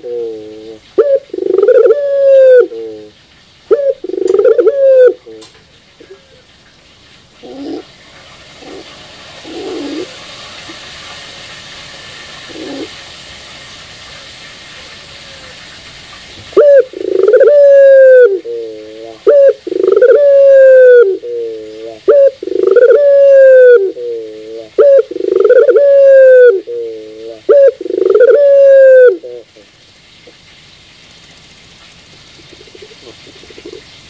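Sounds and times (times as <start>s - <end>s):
dove cooing: 0.0s - 6.5s, 7.4s - 8.0s, 8.6s - 10.2s, 12.4s - 13.0s, 16.5s - 29.6s, 32.2s - 34.0s.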